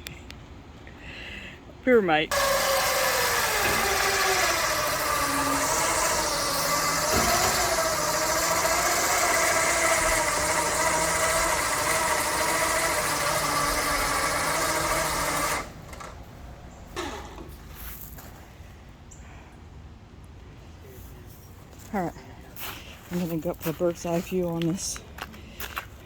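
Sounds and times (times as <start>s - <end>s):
motor running with wavering whine: 2.3s - 16.2s.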